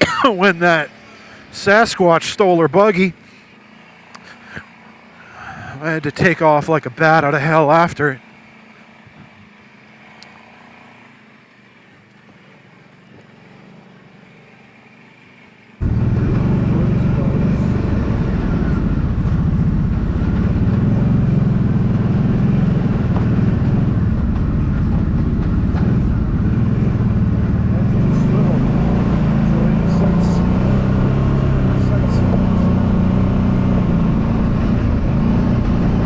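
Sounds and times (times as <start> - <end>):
atv engine running: 0.0 - 36.0.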